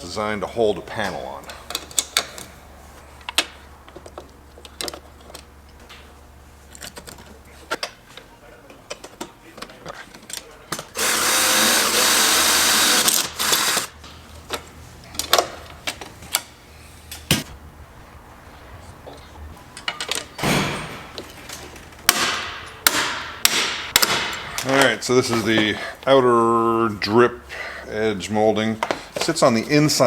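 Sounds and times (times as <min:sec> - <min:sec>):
power drill boring into metal: 0:11.0 - 0:13.9.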